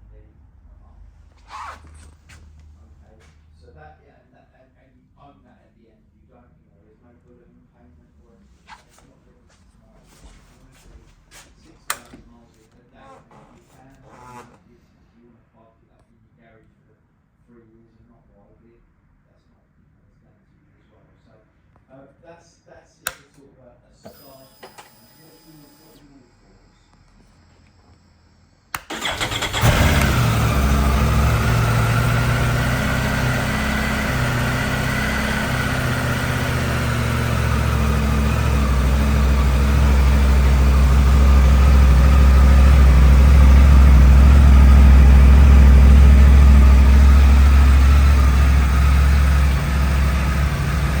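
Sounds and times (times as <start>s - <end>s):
motorcycle starter cranking: 28.8s - 51.0s
motorcycle engine idling: 28.9s - 51.0s.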